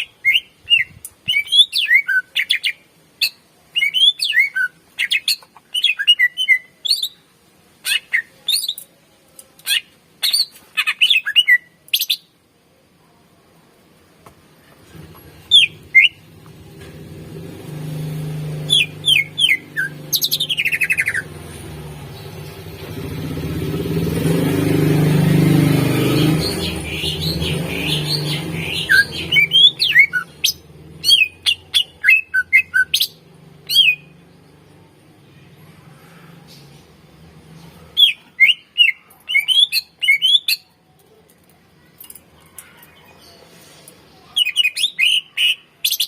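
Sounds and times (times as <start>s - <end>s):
bird singing whistled notes: 0.0s - 7.2s, 15.5s - 16.2s, 18.6s - 21.3s, 26.0s - 34.2s, 38.0s - 40.7s, 44.4s - 46.0s.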